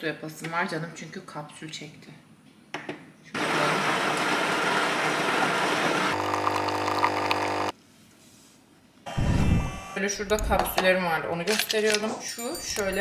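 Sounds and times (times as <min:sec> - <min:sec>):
coffee grinder whirring: 0:03.4 - 0:07.7
coffee pouring into cup: 0:06.2 - 0:07.7.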